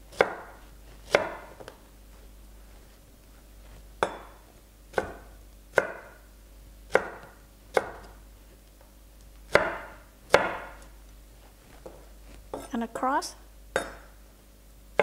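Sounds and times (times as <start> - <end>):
knife chopping on cutting board: 0.1 - 1.8, 4.0 - 6.2, 6.9 - 8.2, 9.5 - 10.8, 13.8 - 14.1.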